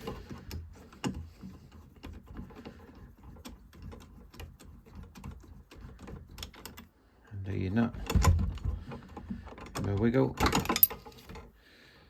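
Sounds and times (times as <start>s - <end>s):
allen key clicking on metal: 10.5s - 11.1s.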